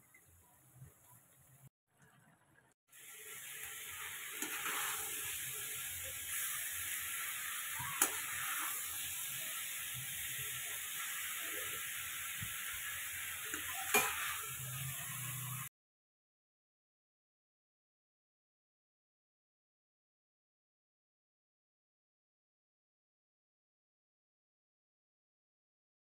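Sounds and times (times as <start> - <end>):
food sizzling in a pan: 2.9 - 15.7
metal spatula stirring: 4.0 - 6.6, 7.8 - 9.2.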